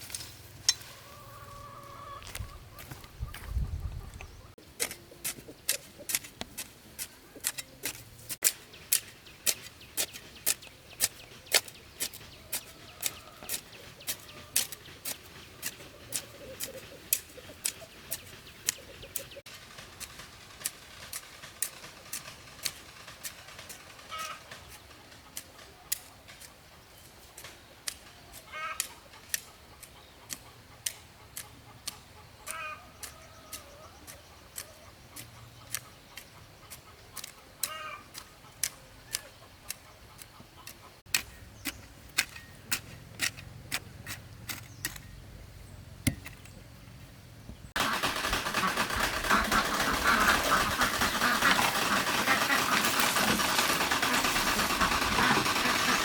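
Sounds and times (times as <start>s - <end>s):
chickens clucking: 0.8s - 8.4s, 9.5s - 19.4s, 21.6s - 26.9s, 28.3s - 41.0s, 47.8s - 56.0s.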